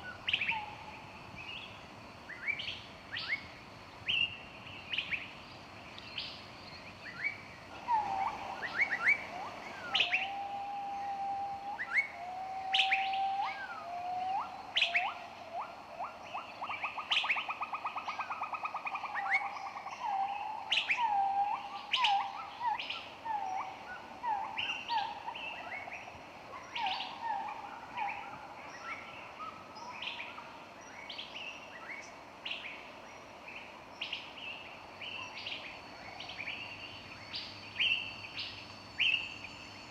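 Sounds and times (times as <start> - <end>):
faint steady high hum: 0.0 - 39.9
songbirds chirping and singing: 6.1 - 30.4.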